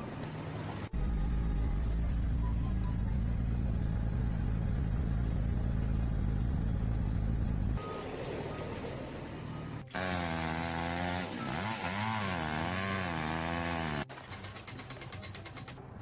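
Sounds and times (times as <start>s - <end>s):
low engine rumble: 0.0s - 10.0s.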